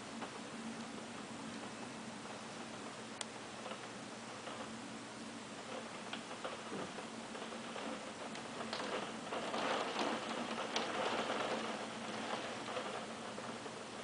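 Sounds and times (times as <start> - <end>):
rain: 0.0 - 14.0
hail pattering on hard surfaces: 3.6 - 4.8, 5.5 - 14.0.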